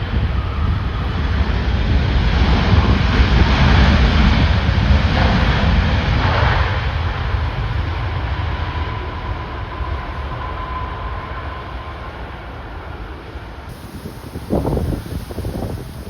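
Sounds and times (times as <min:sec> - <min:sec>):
wind buffeting microphone: 0:13.7 - 0:16.0.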